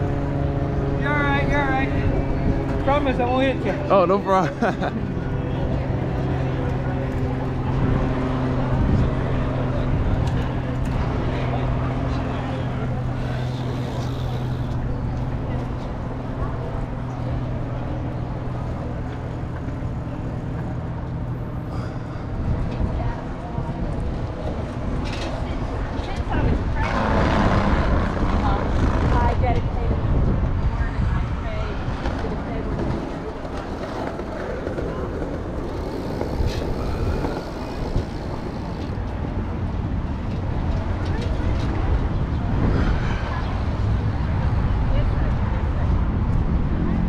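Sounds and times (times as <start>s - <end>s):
bicycle rolling noise: 0.0s - 47.0s
wind on microphone: 21.7s - 47.0s.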